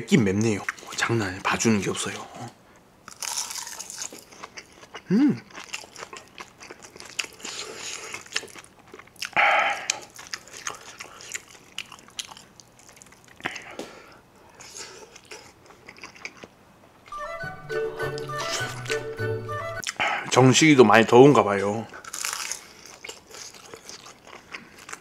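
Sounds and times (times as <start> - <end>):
chewing and crunching: 3.1 - 13.9, 14.5 - 16.6, 18.2 - 19.0, 21.9 - 25.0
person humming: 5.1 - 5.4.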